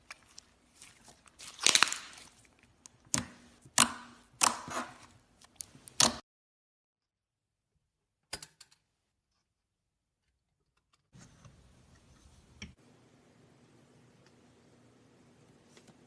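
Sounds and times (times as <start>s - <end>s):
crunchy slime crackling: 0.0s - 3.0s.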